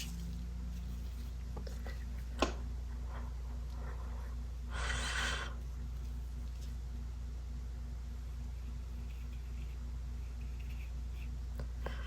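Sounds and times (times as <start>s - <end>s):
steady low hum: 0.0s - 12.0s
paintbrush strokes on paper: 8.2s - 11.4s
scratchy brush scrubbing: 8.3s - 11.4s.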